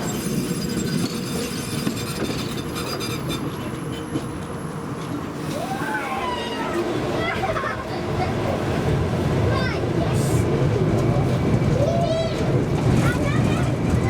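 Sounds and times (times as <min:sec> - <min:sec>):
tram wheels rumbling on rails: 0:00.0 - 0:14.0.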